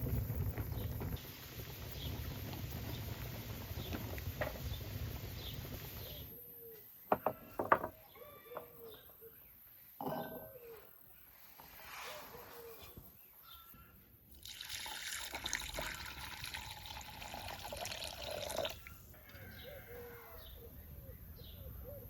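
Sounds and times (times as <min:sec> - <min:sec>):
birds calling: 0:18.5 - 0:22.0.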